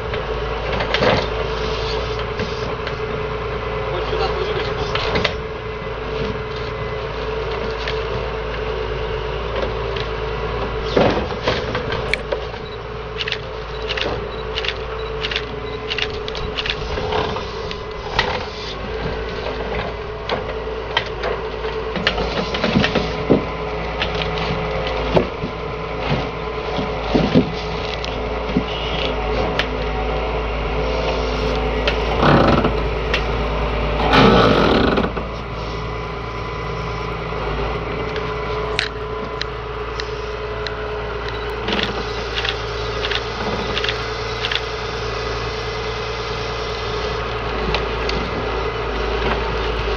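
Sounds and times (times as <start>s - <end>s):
excavator engine and hydraulics: 0.0s - 49.9s
wood knocking and clunking: 31.8s - 33.4s.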